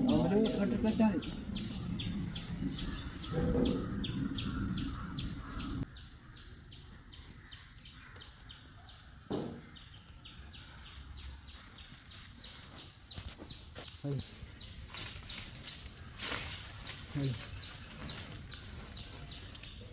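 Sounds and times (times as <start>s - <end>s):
bird chirping: 0.0s - 19.9s
knock: 9.3s - 9.7s.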